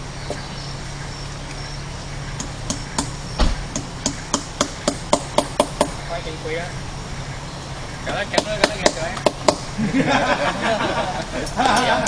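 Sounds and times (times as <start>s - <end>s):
steady low hum: 0.0s - 12.0s
sharp chopping strikes: 2.4s - 6.0s, 8.4s - 9.7s.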